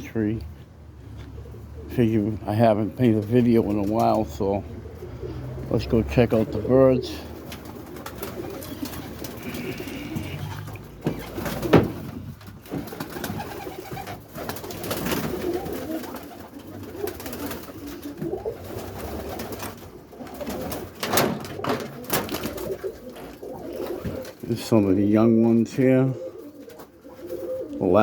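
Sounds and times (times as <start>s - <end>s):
pigeons cooing: 1.1s - 28.0s
sharp knocks: 11.0s - 12.9s.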